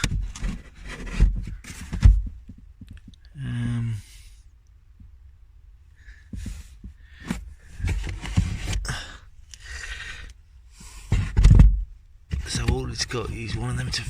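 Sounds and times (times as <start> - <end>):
items rustling and knocking: 0.0 - 3.3, 6.3 - 10.2, 10.8 - 14.0.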